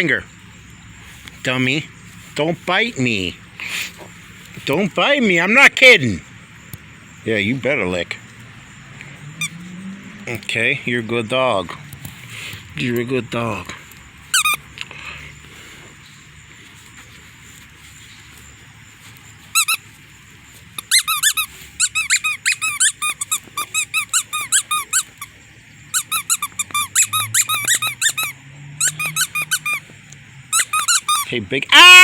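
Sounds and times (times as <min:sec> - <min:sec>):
squeaky dog toy squeaking: 0:14.3 - 0:14.6, 0:19.5 - 0:19.8, 0:20.8 - 0:25.3, 0:25.9 - 0:29.8, 0:30.5 - 0:31.3.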